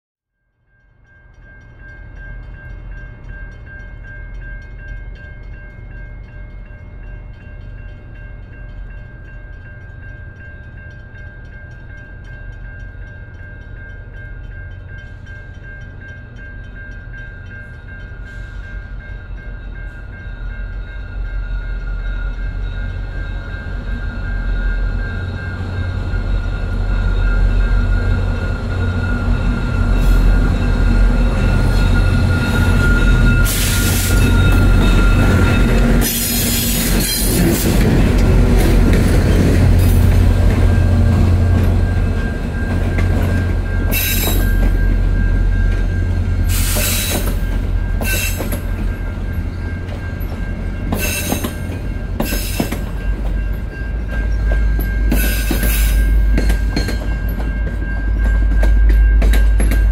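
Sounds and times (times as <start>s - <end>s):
diesel locomotive engines droning: 1.0s - 59.9s
steel wheels squealing on rails: 16.7s - 59.9s.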